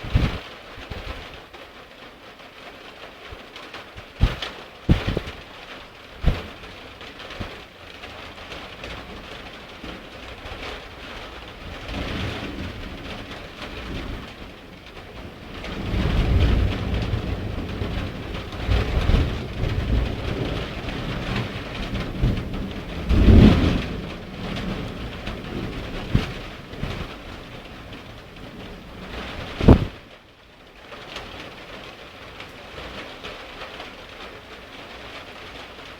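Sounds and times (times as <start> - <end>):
thunder rumbling: 0.0 - 1.4, 4.0 - 5.6, 6.2 - 7.6, 8.4 - 30.1
heavy rain: 0.0 - 35.9.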